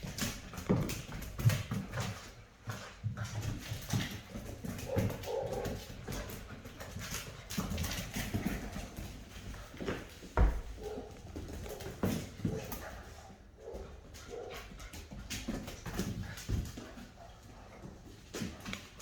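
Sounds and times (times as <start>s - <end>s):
puppies scuffling: 0.0s - 19.0s
heavy thump: 10.4s - 10.8s.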